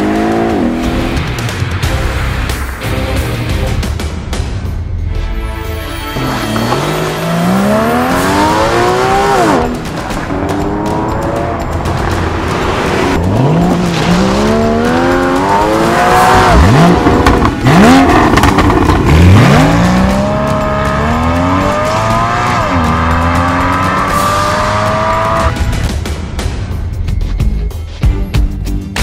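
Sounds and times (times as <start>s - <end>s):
car engine accelerating through gears: 6.2s - 25.6s.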